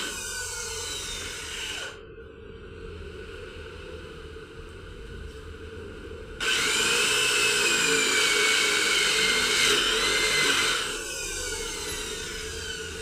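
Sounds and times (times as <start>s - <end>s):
power tool whining: 0.0s - 2.0s, 6.4s - 13.0s
low steady hum: 0.0s - 13.0s.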